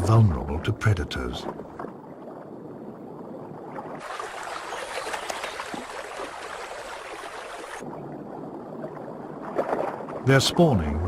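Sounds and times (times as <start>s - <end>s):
water running in a stream: 3.0s - 11.0s.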